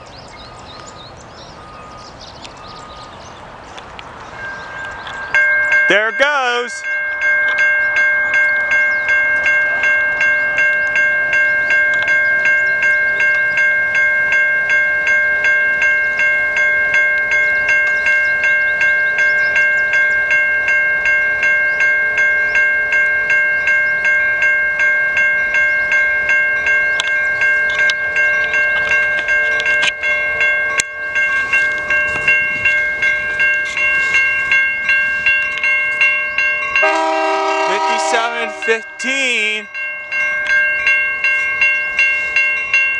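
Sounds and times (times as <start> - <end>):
railroad crossing bell ringing: 0.0 - 42.9
train horn: 36.8 - 39.0.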